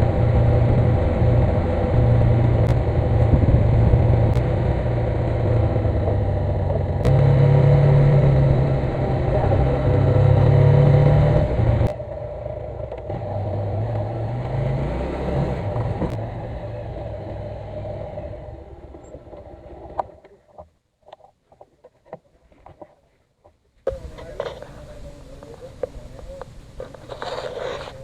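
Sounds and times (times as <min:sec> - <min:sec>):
motorcycle engine running: 0:00.0 - 0:20.2.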